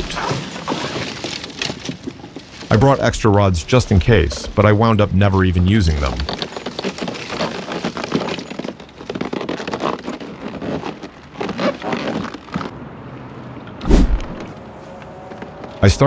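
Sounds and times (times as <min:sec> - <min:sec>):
heavy thump: 0:13.8 - 0:14.5.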